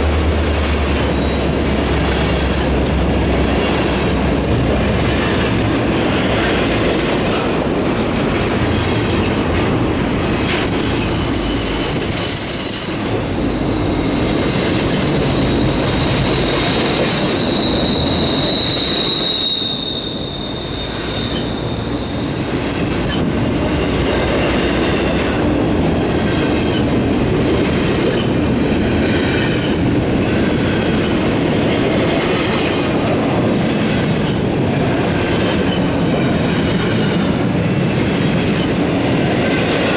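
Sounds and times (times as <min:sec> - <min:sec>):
high wheel squeal: 0:00.0 - 0:02.8, 0:08.9 - 0:23.3
low steady wheel squeal: 0:00.0 - 0:04.2, 0:08.8 - 0:25.4
train wheels clattering over rails: 0:00.0 - 0:39.9.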